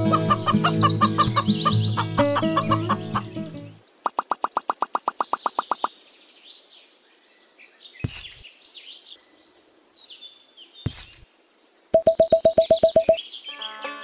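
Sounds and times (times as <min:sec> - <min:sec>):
birds chirping and trilling: 0:00.0 - 0:14.0
fast even clicks: 0:12.0 - 0:13.2.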